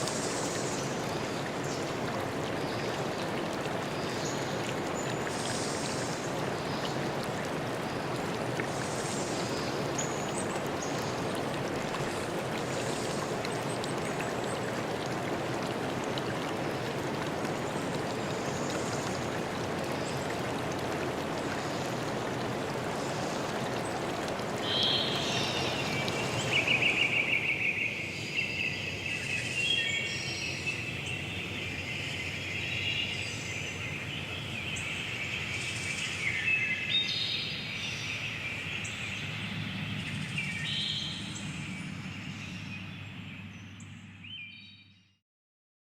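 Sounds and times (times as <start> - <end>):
stream water running: 0.0 - 44.4
songbirds singing and trilling: 24.6 - 45.0.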